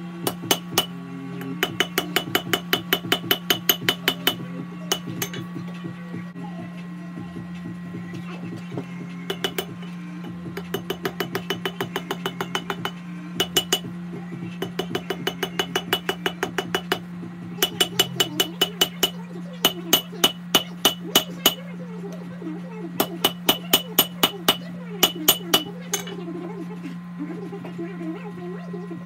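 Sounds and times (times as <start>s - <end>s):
gas forge humming: 0.0s - 29.0s
hammer striking steel on anvil: 0.2s - 5.5s, 9.3s - 9.8s, 10.6s - 13.9s, 14.6s - 21.6s, 23.0s - 26.1s.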